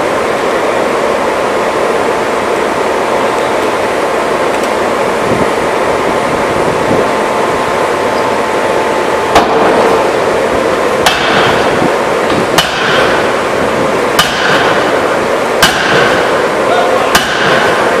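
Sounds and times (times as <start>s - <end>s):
loud machine noise: 0.0s - 18.0s
power hammer metallic blows: 9.3s - 10.1s, 11.0s - 13.4s, 14.1s - 18.0s.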